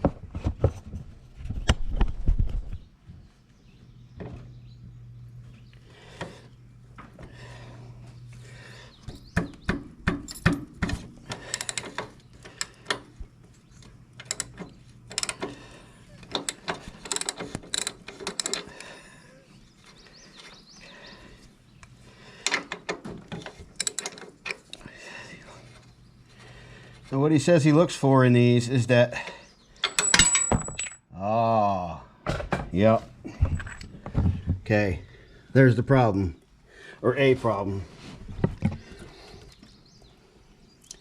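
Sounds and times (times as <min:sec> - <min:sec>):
low steady hum: 0:00.0 - 0:41.0
hand tools clanking and ratcheting: 0:10.1 - 0:19.1, 0:22.4 - 0:25.0, 0:29.8 - 0:31.1, 0:33.4 - 0:34.2.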